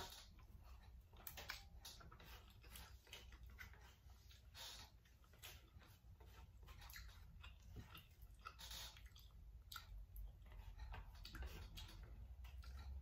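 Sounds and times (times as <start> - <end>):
chewing noodles: 0.0 - 13.0
wet mouth clicks: 6.8 - 13.0.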